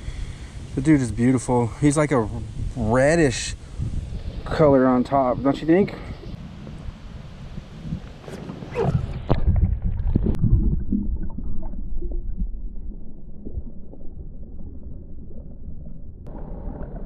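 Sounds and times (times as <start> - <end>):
muffled underwater rumbling and gurgling: 7.5 - 17.0
microphone splashing into water: 8.0 - 15.4.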